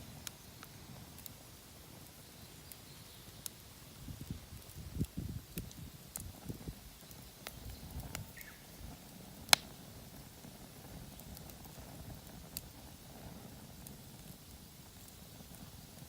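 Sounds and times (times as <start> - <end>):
campfire crackling: 0.0 - 16.0
low rumble of flame: 0.0 - 16.0
sharp pop of burning wood: 0.0 - 16.0.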